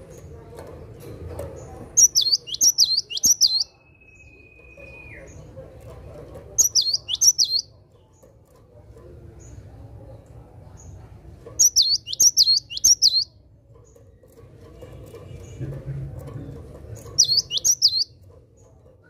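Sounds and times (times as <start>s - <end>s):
bird singing high sharp notes: 2.0s - 5.3s, 6.6s - 7.7s, 11.6s - 13.3s, 17.2s - 18.1s.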